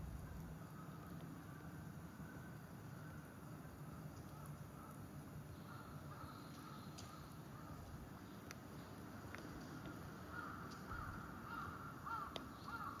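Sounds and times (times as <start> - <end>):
low outdoor background rumble: 0.0 - 13.0
crow cawing: 5.6 - 7.8, 10.3 - 13.0.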